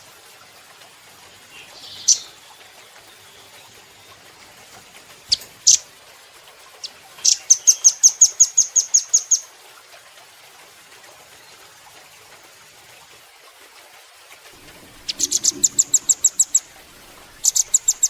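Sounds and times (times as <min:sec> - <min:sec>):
nuthatch calling: 0:07.2 - 0:09.4, 0:14.6 - 0:18.0.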